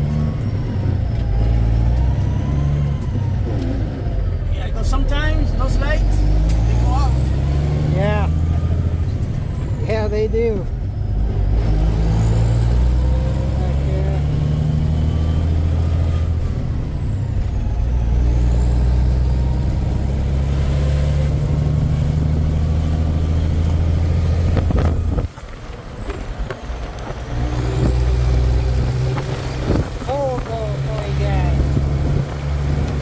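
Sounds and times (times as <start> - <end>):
truck diesel engine running: 0.0 - 33.0.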